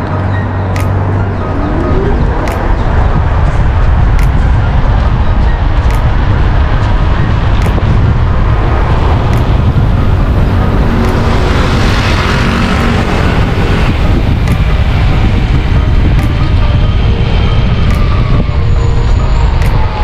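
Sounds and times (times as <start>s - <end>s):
traffic noise: 0.0s - 20.0s
vehicle passing: 0.0s - 20.0s
wind buffeting microphone: 0.0s - 20.0s.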